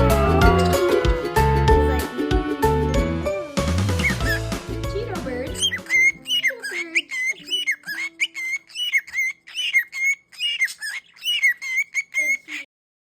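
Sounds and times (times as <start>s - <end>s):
pet bird chirping and whistling: 3.9s - 12.7s.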